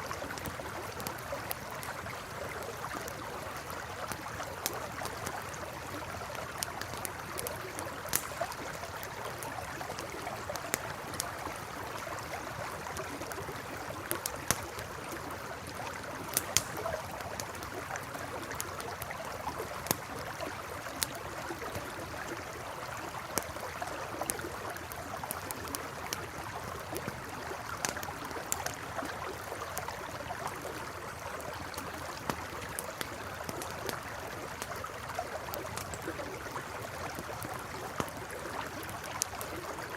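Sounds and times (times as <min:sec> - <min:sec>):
campfire crackling and popping: 0:00.0 - 0:39.9
river babbling over stones: 0:00.0 - 0:39.9.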